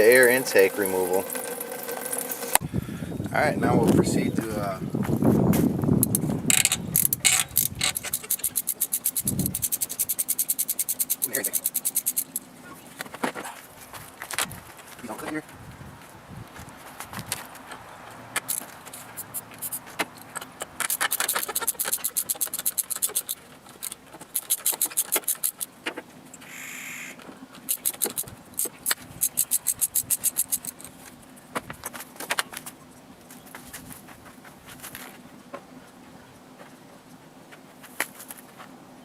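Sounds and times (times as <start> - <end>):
ratchet wrench clicking: 6.0 - 12.4, 20.8 - 25.7, 27.7 - 30.9.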